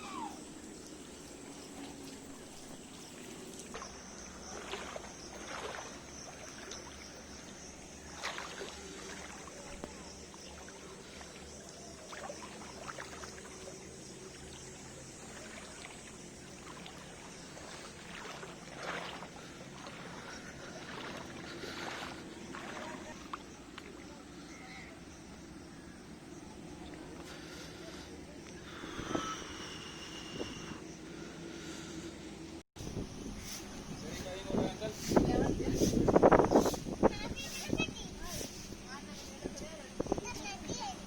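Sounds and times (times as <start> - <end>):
water trickling: 0.0 - 28.6.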